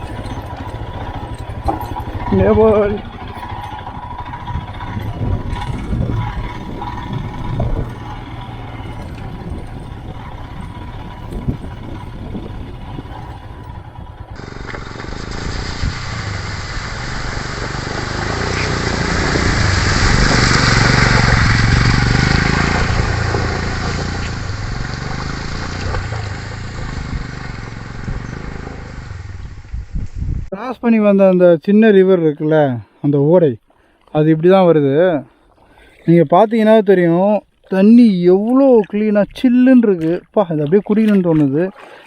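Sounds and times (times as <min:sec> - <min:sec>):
knocks and clatter: 0:00.0 - 0:15.1
motorcycle engine running: 0:00.0 - 0:30.5
rushing noise: 0:03.1 - 0:30.5.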